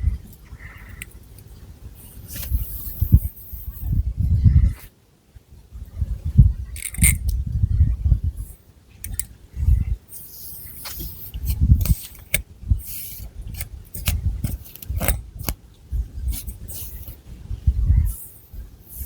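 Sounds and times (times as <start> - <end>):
fingernails scratching hair: 10.6 - 15.6, 16.3 - 17.2.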